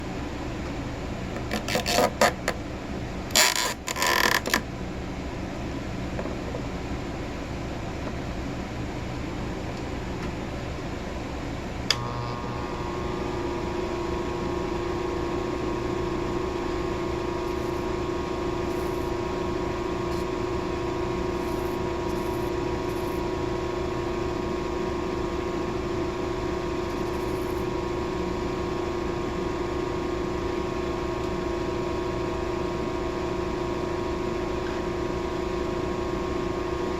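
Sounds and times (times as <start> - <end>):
steady multi-tone hum: 0.0 - 36.9
stone-grinding machine running: 12.0 - 23.2.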